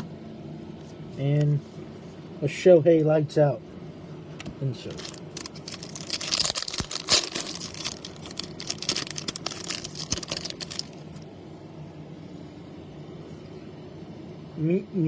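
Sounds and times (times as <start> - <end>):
steady low hum: 0.0 - 15.0
foil pack crinkling: 4.9 - 11.0.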